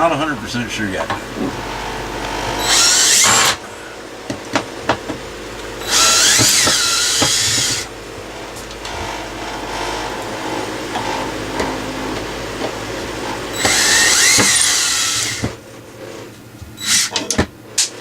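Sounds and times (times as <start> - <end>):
cordless drill spinning: 1.3 - 3.7, 5.4 - 15.6, 16.8 - 17.3.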